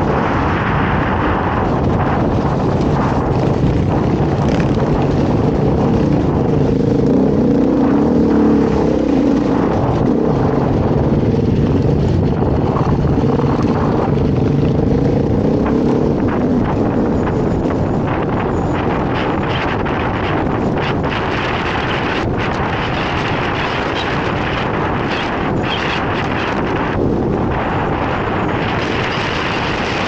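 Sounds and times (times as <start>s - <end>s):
dirt bike engine revving: 1.4s - 17.1s.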